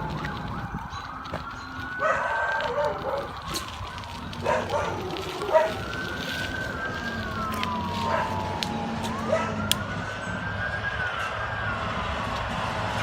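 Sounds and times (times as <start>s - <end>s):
emergency sirens wailing: 0.0s - 13.0s.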